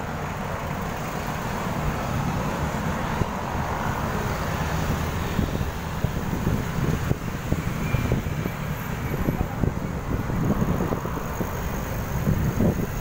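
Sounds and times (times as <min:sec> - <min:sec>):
faint road noise: 0:00.0 - 0:13.0
wind buffeting microphone: 0:04.7 - 0:13.0.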